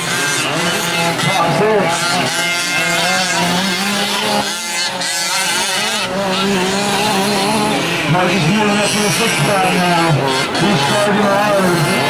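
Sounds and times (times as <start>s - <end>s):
small two-stroke engines revving: 0.0s - 12.0s.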